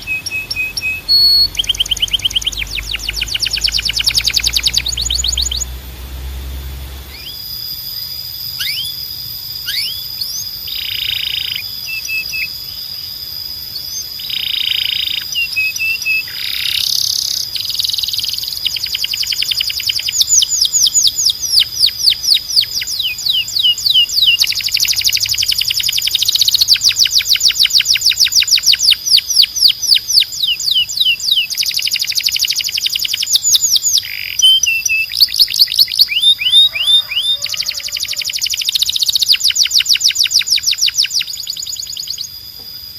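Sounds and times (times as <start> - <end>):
canary singing trills: 0.0 - 5.8, 6.8 - 42.9.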